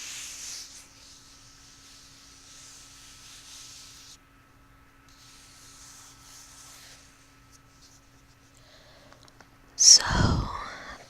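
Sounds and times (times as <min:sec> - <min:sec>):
faint rubbing over a surface: 0:00.0 - 0:04.2, 0:05.1 - 0:08.6.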